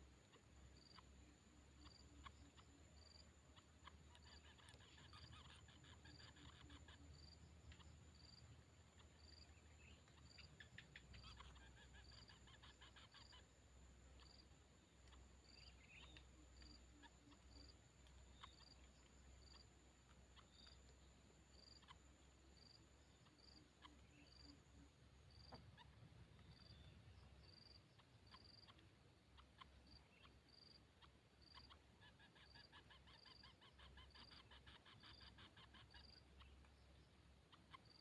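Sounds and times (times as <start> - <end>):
soft high chirp: 3.5 - 13.4, 14.2 - 19.7.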